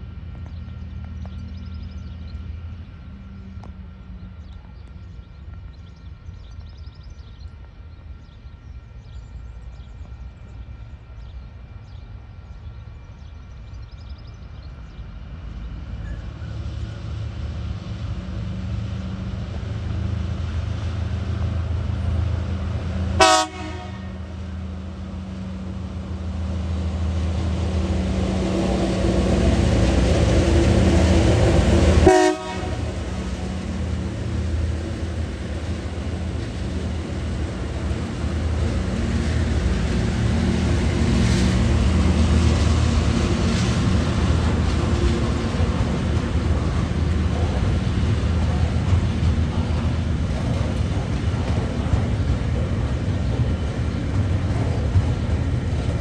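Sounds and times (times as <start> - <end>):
diesel locomotive engine drone: 0.0 - 56.0
train horn toots: 23.2 - 24.4, 32.0 - 33.2.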